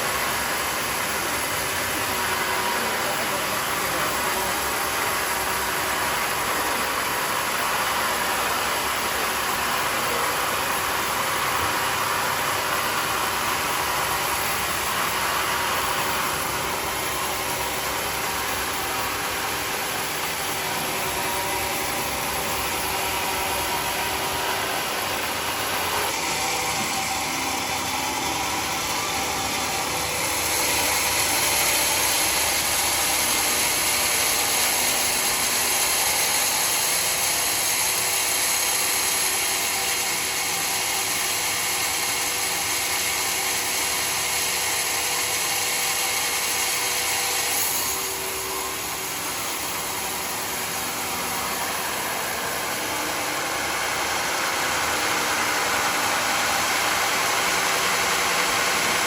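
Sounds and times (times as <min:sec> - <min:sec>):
sawmill cutting wood: 0:00.0 - 0:59.0.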